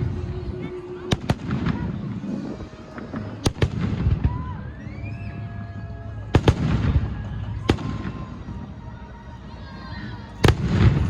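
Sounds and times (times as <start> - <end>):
fireworks bangs: 0.0 - 8.8, 10.2 - 11.0
firework rising whistle: 2.3 - 8.7.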